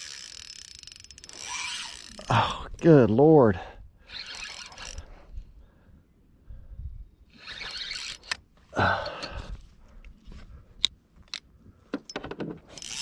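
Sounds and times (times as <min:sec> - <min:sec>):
sharp reel clicks: 0:00.0 - 0:02.3, 0:04.1 - 0:05.1, 0:07.3 - 0:08.4, 0:12.7 - 0:13.0
fishing reel whirring: 0:00.0 - 0:02.4, 0:04.0 - 0:05.2, 0:07.3 - 0:08.4, 0:12.7 - 0:13.0.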